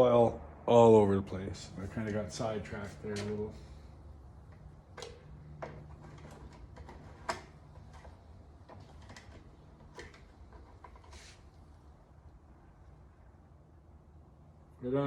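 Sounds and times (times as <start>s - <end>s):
steady low hum: 0.0s - 15.0s
clicks and taps of tools: 4.5s - 11.2s.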